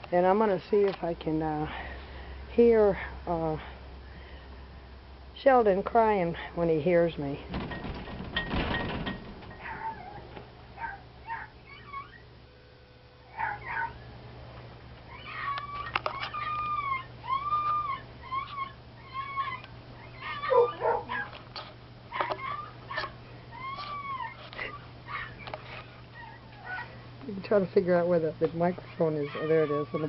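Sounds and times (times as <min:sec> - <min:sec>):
dog whimpering and whining: 0:09.6 - 0:12.3, 0:13.3 - 0:14.0, 0:15.1 - 0:21.4, 0:22.1 - 0:27.0, 0:28.8 - 0:30.0.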